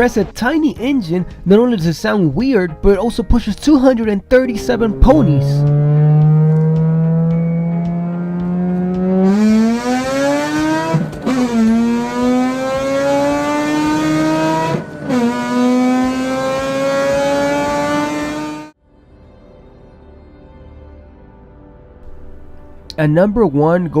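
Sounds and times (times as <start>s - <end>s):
rotary engine accelerating: 4.6s - 18.8s.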